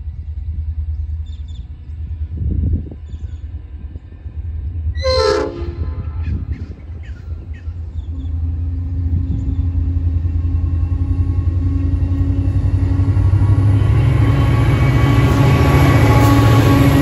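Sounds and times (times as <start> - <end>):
locomotive engine hum: 0.0 - 17.0
train horn blast: 4.9 - 6.5, 13.2 - 17.0.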